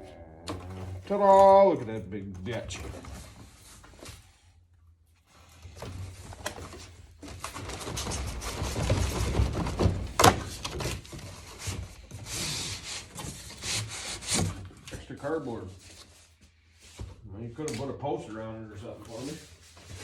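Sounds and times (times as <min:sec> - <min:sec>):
cardboard rubbing and scraping: 0:05.4 - 0:16.3, 0:18.9 - 0:20.0.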